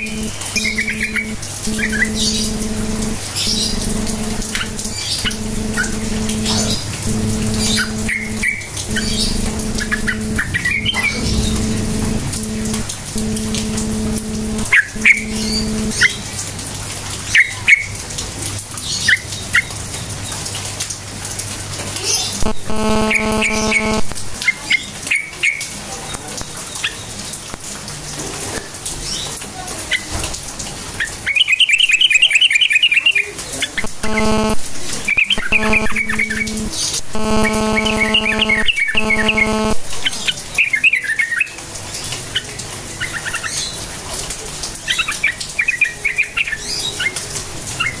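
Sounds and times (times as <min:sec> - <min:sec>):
low droning tone: 0:00.0 - 0:16.0, 0:22.4 - 0:24.4, 0:33.8 - 0:39.9.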